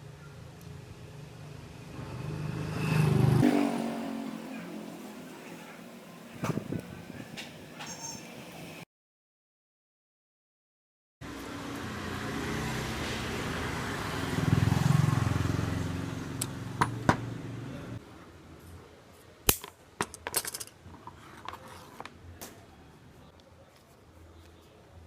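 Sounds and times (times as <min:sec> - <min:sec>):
metal parts clinking: 0:19.6 - 0:20.8.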